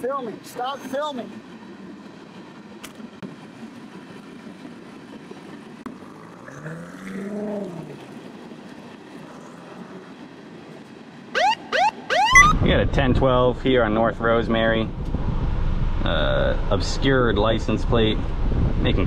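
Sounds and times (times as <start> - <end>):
police siren whooping: 11.3 - 12.6.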